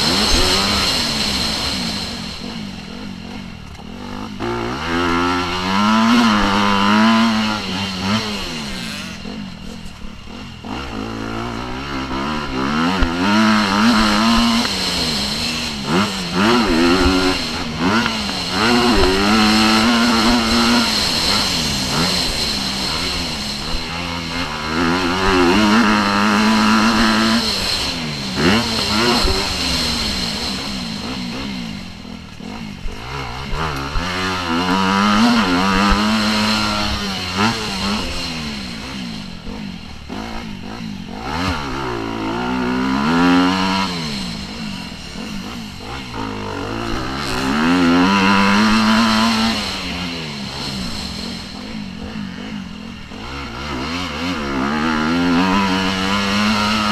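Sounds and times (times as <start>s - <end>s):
motocross bike engine revving: 0.0s - 56.9s.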